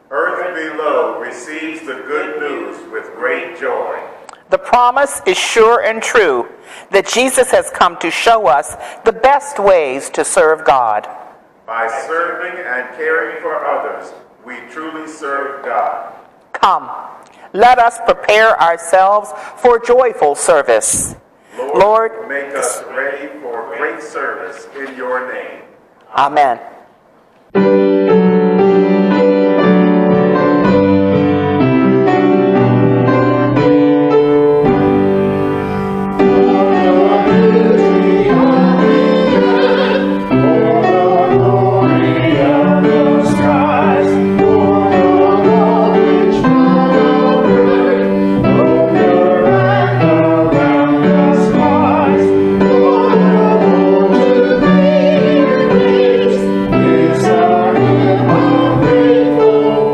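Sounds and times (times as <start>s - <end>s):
piano chords: 27.5s - 59.9s
voices singing a hymn: 34.2s - 59.9s.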